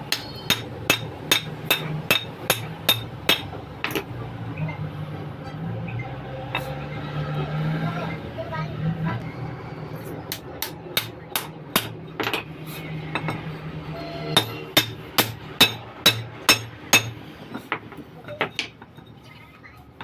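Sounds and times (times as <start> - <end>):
hammer striking steel: 0.0 - 4.1, 10.3 - 12.5, 13.1 - 18.8.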